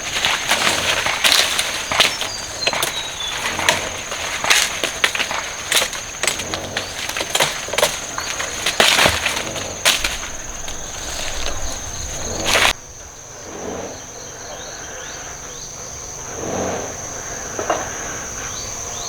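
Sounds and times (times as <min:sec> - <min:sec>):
plant stalks cracking and rustling: 0:00.0 - 0:12.8
insect drone: 0:00.0 - 0:19.0.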